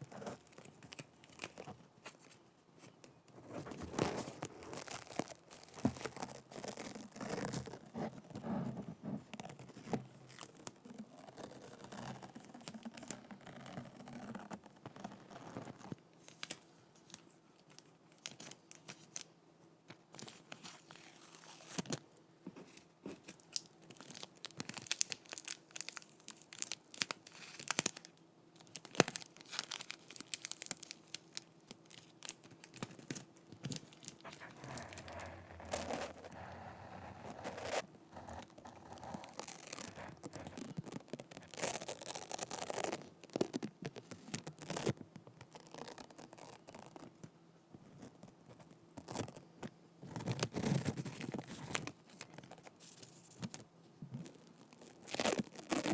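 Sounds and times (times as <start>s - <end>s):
sticky tape peeling and crackling: 28.7s - 47.1s.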